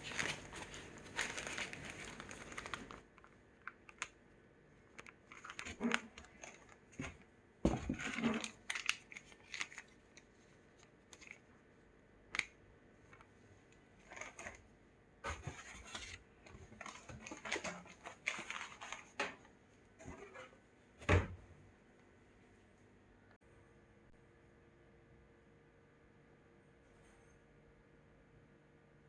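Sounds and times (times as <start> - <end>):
packaging rustling and scraping: 0.0 - 4.0, 4.9 - 11.4, 14.0 - 14.6, 15.2 - 20.6.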